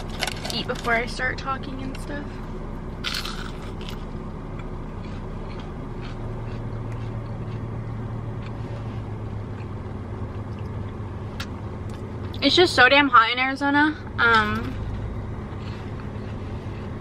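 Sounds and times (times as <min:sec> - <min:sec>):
car engine idling: 0:00.0 - 0:17.0
person eating: 0:03.0 - 0:11.5.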